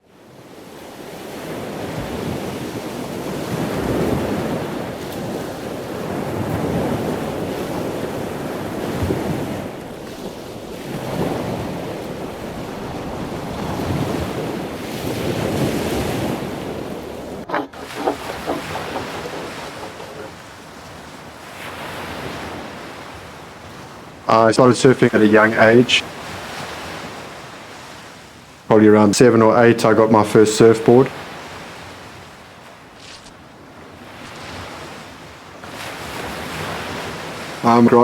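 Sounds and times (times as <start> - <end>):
ocean surf breaking: 0.2 - 38.0
wind on microphone: 0.7 - 24.2
short knocks: 17.4 - 20.4.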